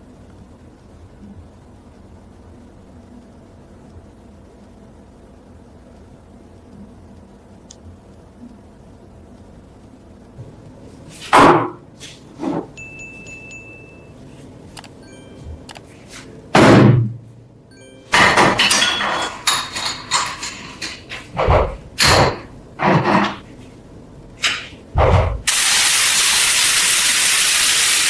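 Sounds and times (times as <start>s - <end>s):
metal parts clanking: 18.2s - 21.3s.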